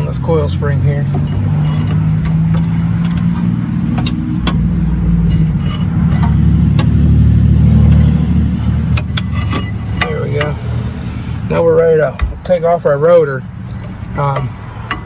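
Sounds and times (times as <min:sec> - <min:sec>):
metal clicks and clinks: 0:00.0 - 0:11.1, 0:13.6 - 0:15.0
low motor hum: 0:00.0 - 0:15.0.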